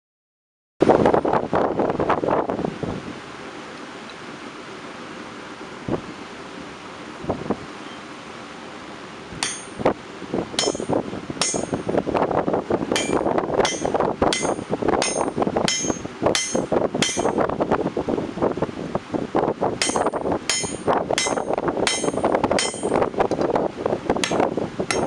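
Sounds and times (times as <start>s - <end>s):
hammer blows on hot steel: 9.3s - 17.6s, 19.8s - 23.5s, 24.1s - 25.0s
ringing hammer strikes: 9.4s - 9.8s, 10.6s - 11.9s, 13.0s - 17.4s, 19.8s - 23.0s, 24.2s - 25.0s.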